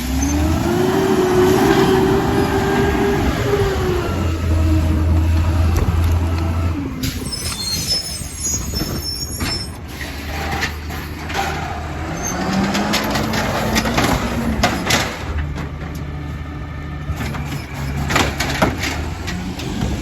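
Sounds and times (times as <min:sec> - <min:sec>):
truck engine hum: 0:00.0 - 0:20.0
high squeals: 0:07.0 - 0:09.9
sharp clanks and knocks: 0:10.3 - 0:16.3, 0:17.1 - 0:20.0.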